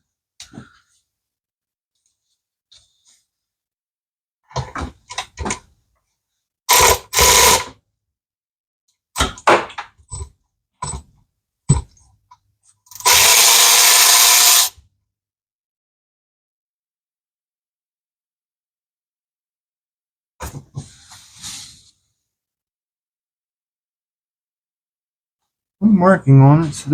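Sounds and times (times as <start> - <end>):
handheld power tool running: 6.7 - 7.7, 12.9 - 14.7
tools clicking and knocking: 9.2 - 11.1, 11.7 - 12.0.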